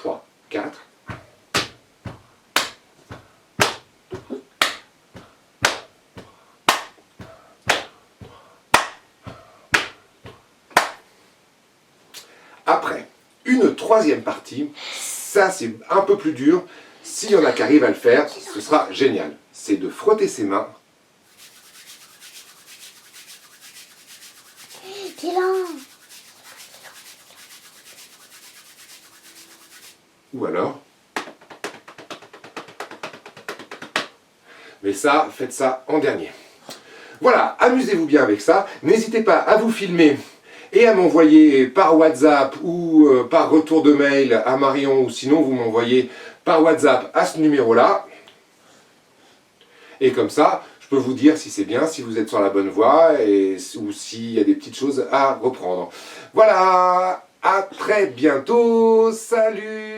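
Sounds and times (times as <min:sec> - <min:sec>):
foot and thigh hits: 0:01.1 - 0:11.0
hand claps and slaps: 0:01.1 - 0:11.0, 0:21.3 - 0:30.0, 0:31.2 - 0:34.2.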